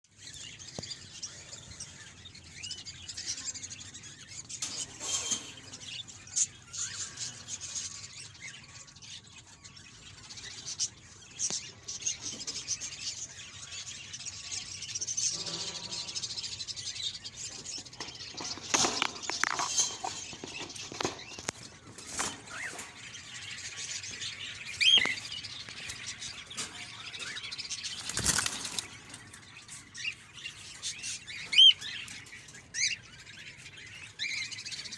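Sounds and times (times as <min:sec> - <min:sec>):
cockatiels chirping: 0:17.2 - 0:34.9.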